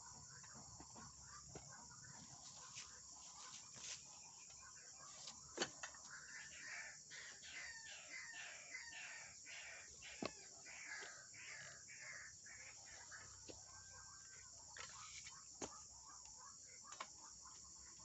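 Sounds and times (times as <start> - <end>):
waterhen croaking calls: 6.1 - 15.6.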